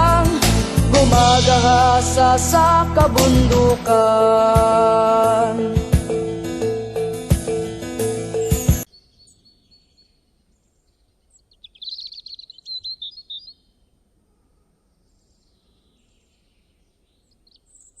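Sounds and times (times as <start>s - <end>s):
bird singing high chirps: 8.4s - 14.0s, 14.9s - 18.0s
faint bird calls: 8.9s - 18.0s.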